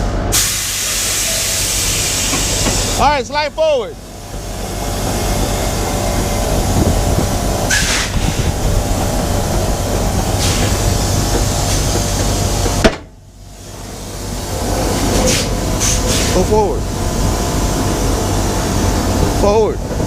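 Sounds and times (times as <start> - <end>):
diesel truck engine rumbling: 0.0 - 20.0
short air hisses: 0.3 - 3.0, 7.7 - 8.5, 10.4 - 11.0, 15.1 - 16.5.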